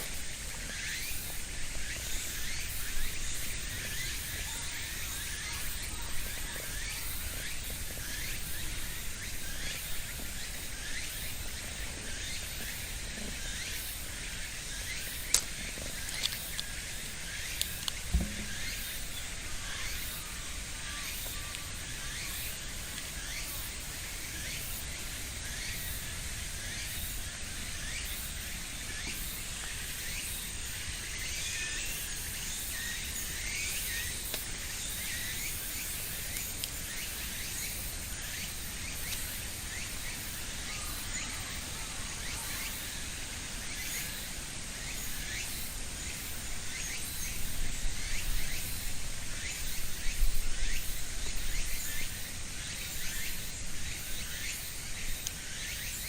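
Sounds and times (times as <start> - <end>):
steady high hiss: 0.0 - 56.0
sharp clicks: 17.5 - 18.5.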